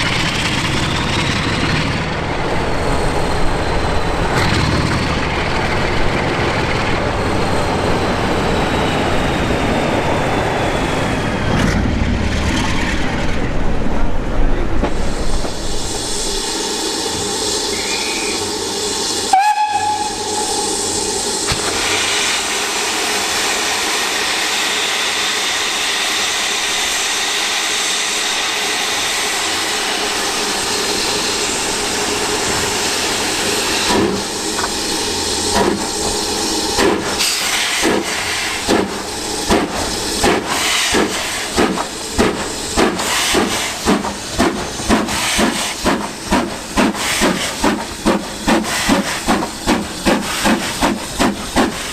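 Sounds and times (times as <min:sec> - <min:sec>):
steam hissing: 0:14.9 - 0:51.9
steam locomotive whistle: 0:17.7 - 0:18.6, 0:19.2 - 0:21.1
locomotive exhaust beats: 0:32.0 - 0:51.9.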